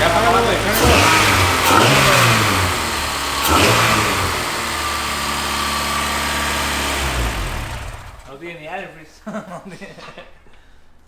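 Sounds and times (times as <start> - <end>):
car engine revving and idling: 0.0 - 8.4.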